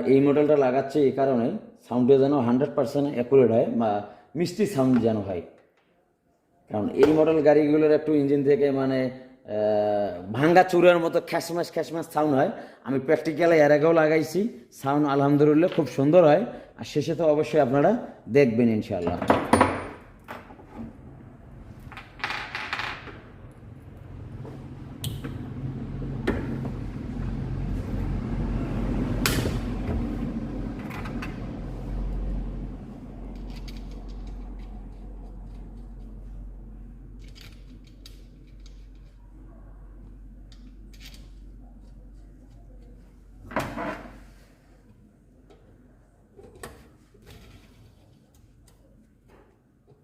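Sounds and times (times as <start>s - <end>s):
steady low hum: 23.0s - 46.4s.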